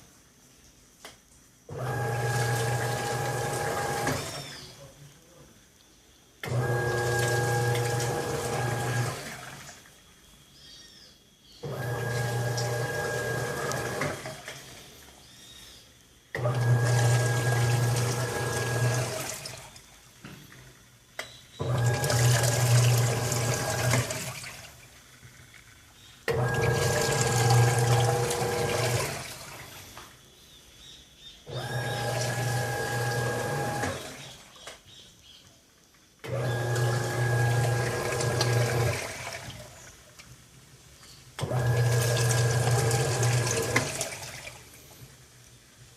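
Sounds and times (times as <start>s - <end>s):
washing machine motor hum: 1.7s - 4.9s, 6.4s - 10.0s, 11.6s - 15.2s, 16.3s - 30.1s, 31.4s - 34.5s, 36.2s - 40.0s, 41.4s - 45.3s
water churning: 1.8s - 4.8s, 6.5s - 10.0s, 11.7s - 15.1s, 16.4s - 21.0s, 21.6s - 30.0s, 31.5s - 34.6s, 36.2s - 40.1s, 41.4s - 45.4s.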